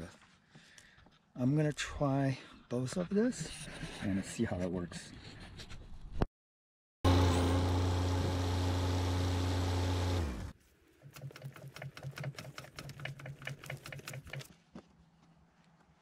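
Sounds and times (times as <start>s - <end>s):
excavator engine running: 7.1s - 10.5s.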